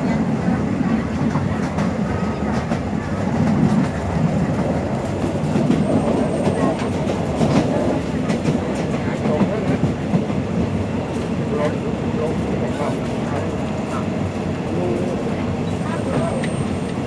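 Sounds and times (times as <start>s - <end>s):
train rumbling along track: 0.0s - 17.0s.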